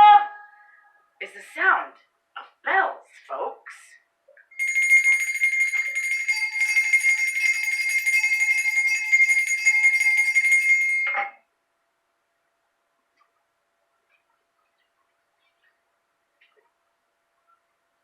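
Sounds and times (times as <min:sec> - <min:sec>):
sleigh bells shaken: 0:04.6 - 0:11.3.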